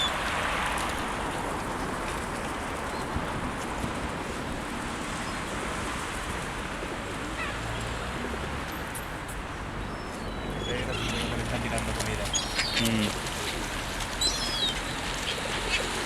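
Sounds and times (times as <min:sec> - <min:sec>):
pigeons and birds calling: 0:09.7 - 0:16.0.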